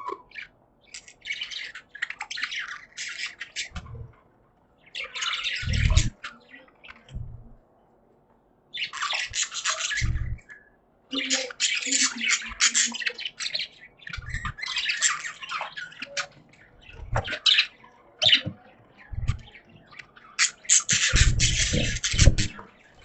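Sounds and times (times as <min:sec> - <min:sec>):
budgerigars chattering and chirping: 0:00.1 - 0:04.2, 0:04.8 - 0:07.6, 0:08.7 - 0:23.0
short low thumps: 0:03.8 - 0:04.1, 0:05.6 - 0:06.1, 0:07.1 - 0:07.6, 0:10.0 - 0:10.4, 0:17.0 - 0:17.4, 0:19.1 - 0:19.5, 0:21.1 - 0:22.6.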